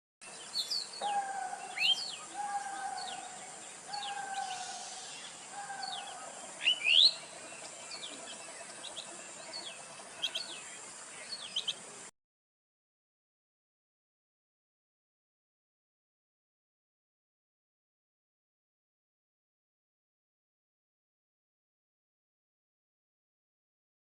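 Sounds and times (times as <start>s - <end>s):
steady high hiss: 0.2s - 12.1s
falling bird call: 3.9s - 7.2s.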